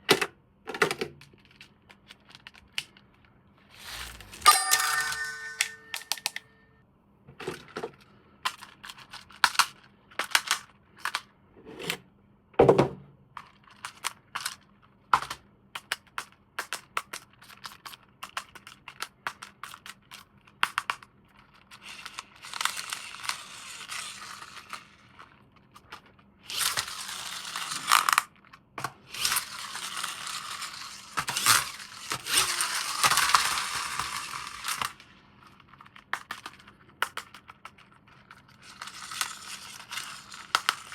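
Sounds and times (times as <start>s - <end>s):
plastic packaging crinkling: 3.7s - 4.5s.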